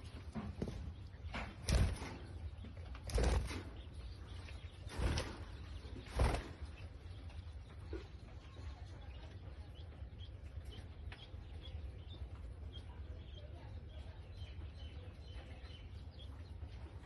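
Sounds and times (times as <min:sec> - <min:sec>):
budgerigar wings fluttering: 0:04.9 - 0:06.8.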